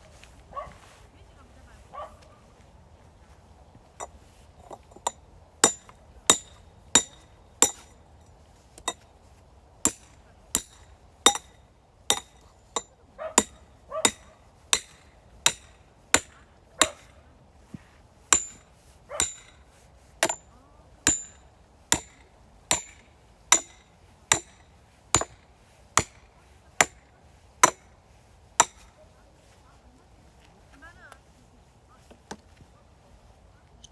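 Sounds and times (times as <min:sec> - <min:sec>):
hand tool striking firewood: 0:03.8 - 0:29.1.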